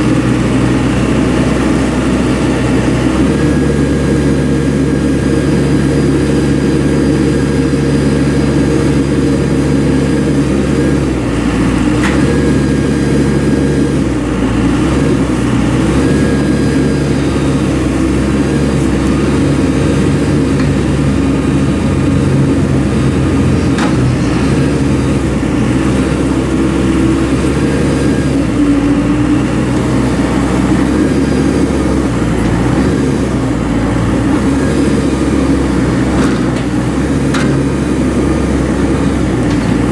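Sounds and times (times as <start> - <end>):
backhoe diesel engine running: 0.0 - 39.9.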